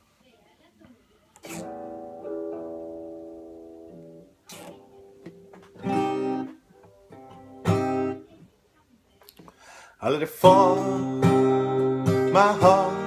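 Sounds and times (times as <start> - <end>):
acoustic guitar strumming: 1.4 - 8.4, 10.2 - 13.0.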